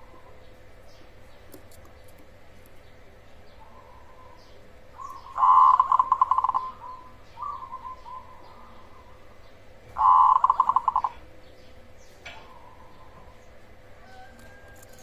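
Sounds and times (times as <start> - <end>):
dove stuttering coos: 3.6 - 11.4.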